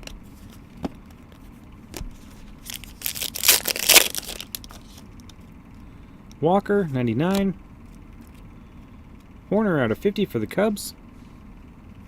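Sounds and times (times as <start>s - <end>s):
foil wrapper tearing: 2.6s - 5.0s.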